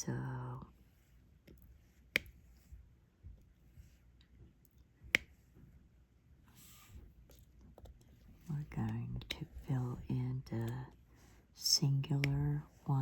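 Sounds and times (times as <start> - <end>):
faint ticks of pen tapping: 12.2 - 12.5.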